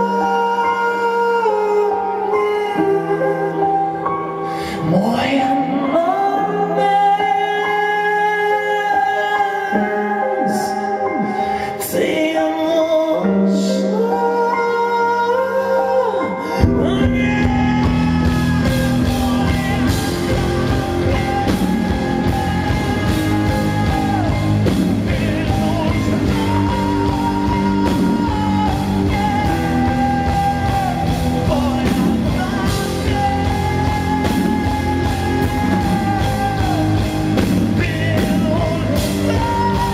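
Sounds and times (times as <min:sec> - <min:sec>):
live rock band playing: 0:13.5 - 0:39.9
bass: 0:16.6 - 0:39.9
guitars: 0:16.8 - 0:39.9
steady drum beat: 0:16.8 - 0:39.9.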